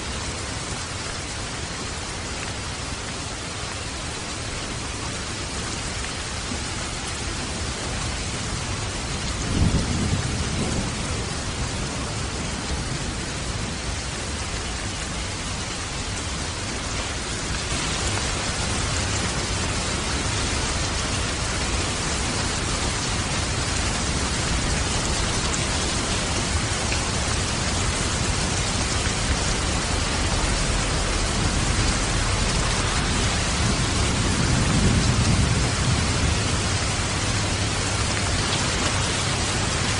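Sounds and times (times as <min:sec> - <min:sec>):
steady rain: 0:00.0 - 0:39.9
low rolls of thunder: 0:09.0 - 0:13.6, 0:17.7 - 0:39.9
waterfall rushing: 0:17.4 - 0:39.9.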